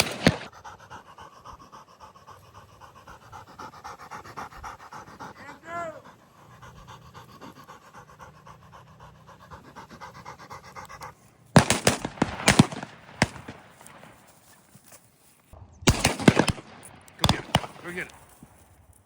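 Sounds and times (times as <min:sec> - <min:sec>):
distant shots: 0:00.0 - 0:00.5, 0:11.6 - 0:14.3, 0:15.9 - 0:18.3
loud shotgun shots: 0:00.0 - 0:00.5, 0:11.6 - 0:14.2, 0:15.8 - 0:18.2
dog panting: 0:00.0 - 0:15.1, 0:16.8 - 0:18.6.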